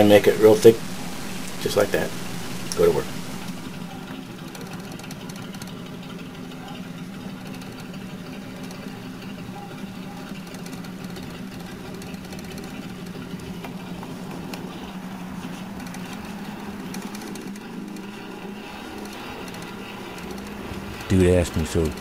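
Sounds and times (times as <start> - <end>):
small electric motor humming: 0.5 - 14.0.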